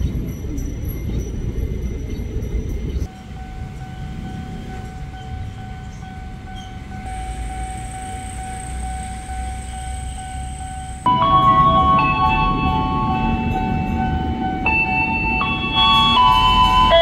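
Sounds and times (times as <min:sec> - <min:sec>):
electric train rumbling: 0:00.0 - 0:17.0
high whine: 0:07.0 - 0:17.0
higher whine: 0:07.0 - 0:17.0.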